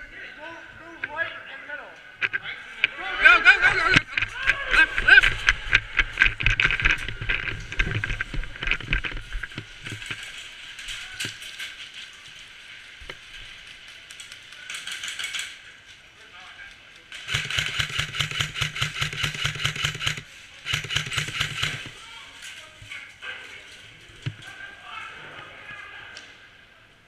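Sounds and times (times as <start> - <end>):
airsoft gun full-auto bursts: 17.2 - 22.0.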